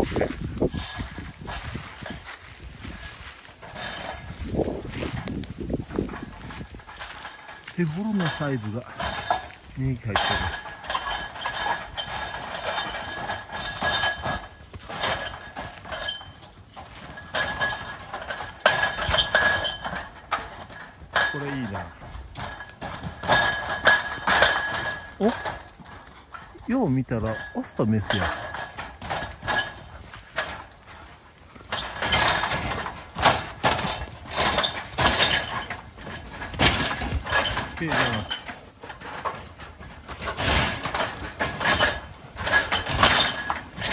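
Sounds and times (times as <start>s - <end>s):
strong wind noise: 0.0s - 3.3s, 4.3s - 6.8s
deer knocking and scuffing in trap: 0.0s - 43.9s.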